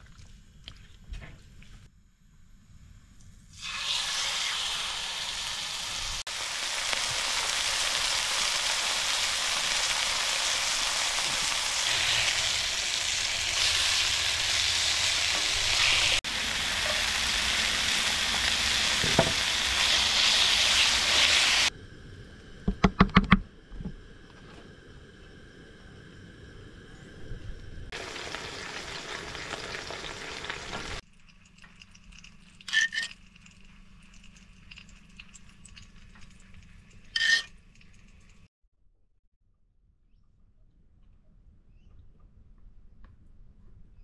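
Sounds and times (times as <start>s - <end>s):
food sizzling in a hot pan: 3.6s - 21.7s, 27.9s - 31.0s.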